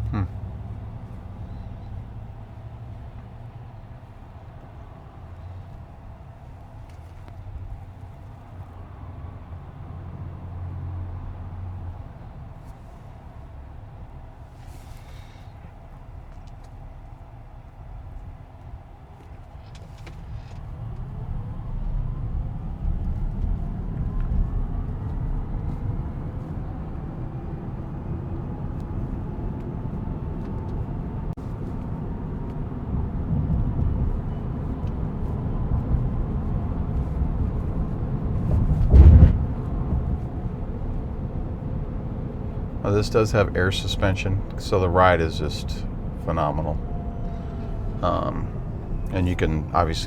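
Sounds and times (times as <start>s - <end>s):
road and tyre rumble: 0.0s - 50.0s
loud low thump: 38.6s - 39.8s.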